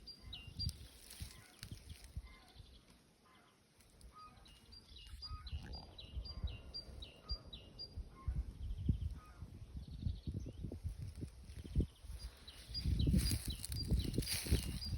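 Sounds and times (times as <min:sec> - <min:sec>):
bird chirps: 0:00.0 - 0:10.7, 0:11.7 - 0:14.9
songbird singing two-part phrase: 0:04.2 - 0:08.0.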